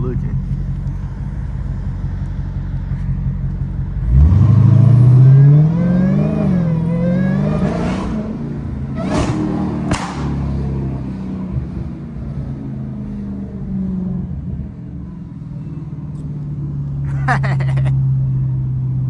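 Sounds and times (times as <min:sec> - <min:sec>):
car engine revving: 0:00.5 - 0:14.2
exhaust backfire bangs: 0:07.5 - 0:11.4.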